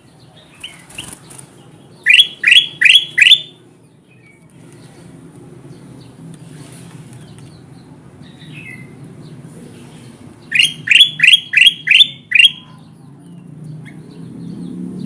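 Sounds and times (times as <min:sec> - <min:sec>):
bulbul calling: 0:02.0 - 0:03.6, 0:10.5 - 0:12.9.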